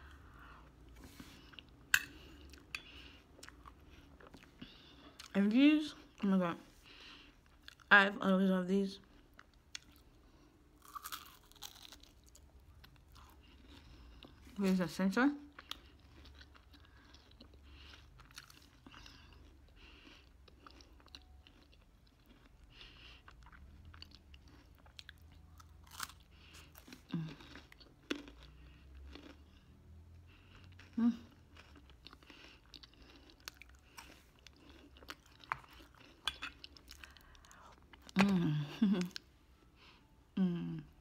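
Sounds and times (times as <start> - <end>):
chewing and crunching wafer: 9.0 - 14.6, 15.4 - 39.3
person humming: 38.2 - 39.1, 40.4 - 41.0.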